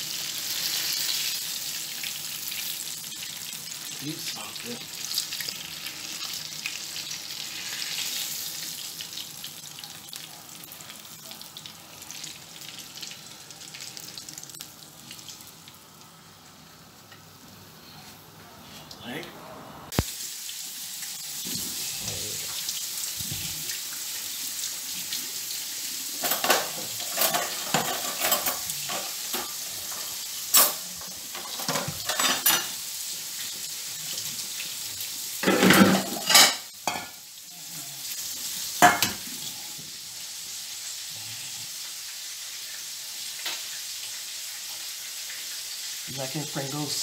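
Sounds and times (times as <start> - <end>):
food frying in hot oil: 0.0 - 17.6, 19.9 - 47.0
kitchen utensils and dishes clattering: 26.1 - 32.8, 35.4 - 37.2, 38.8 - 39.3.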